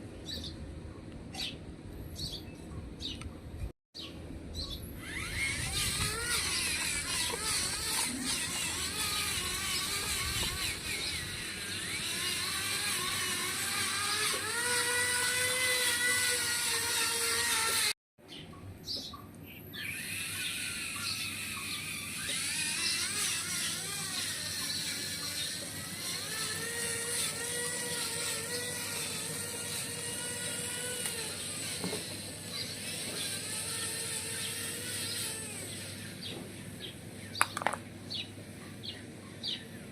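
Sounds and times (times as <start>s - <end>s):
electric gear motors whining: 4.6s - 18.0s, 19.7s - 38.2s.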